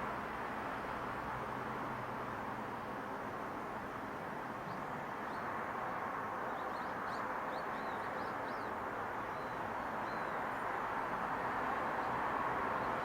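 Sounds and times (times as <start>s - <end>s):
distant traffic: 0.0s - 13.0s
wind: 0.0s - 13.0s
small birds chirping: 4.6s - 5.5s, 6.3s - 10.7s.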